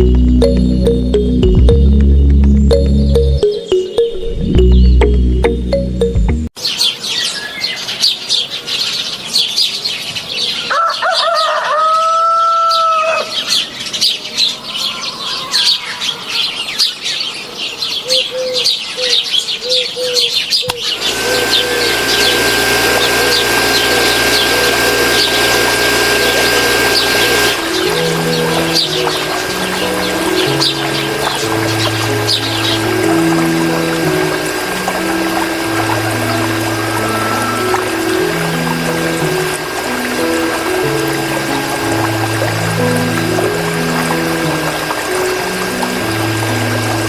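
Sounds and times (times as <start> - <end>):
small birds chirping: 6.6 - 10.8, 12.7 - 47.0
steady hum with high tone: 20.9 - 47.0.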